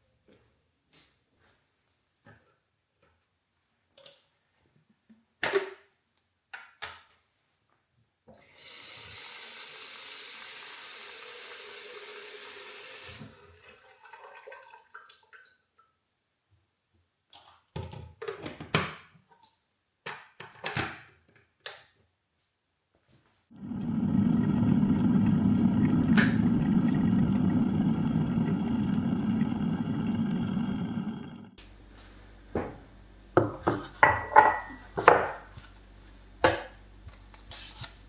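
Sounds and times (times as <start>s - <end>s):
water running from tap: 8.4s - 14.9s, 23.5s - 31.6s.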